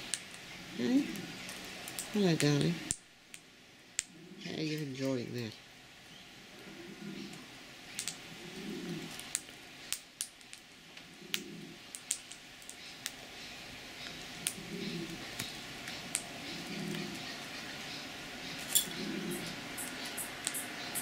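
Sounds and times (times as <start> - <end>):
soft low murmur: 4.0 - 9.8, 12.8 - 20.9.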